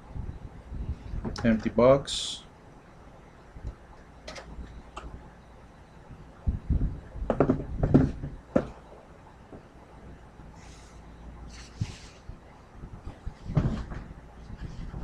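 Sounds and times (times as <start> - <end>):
sharp knocks and clicks: 7.3 - 8.8
soft rustles: 10.6 - 12.4.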